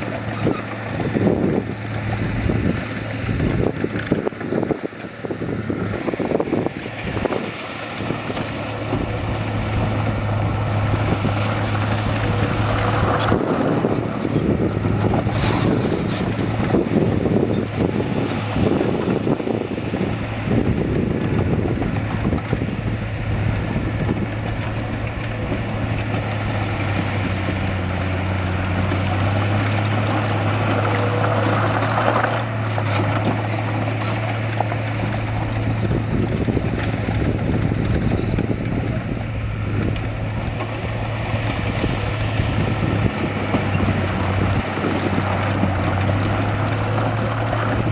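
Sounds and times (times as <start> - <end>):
heavy diesel engine running: 0.0 - 47.9
rough machinery clatter: 0.0 - 47.9.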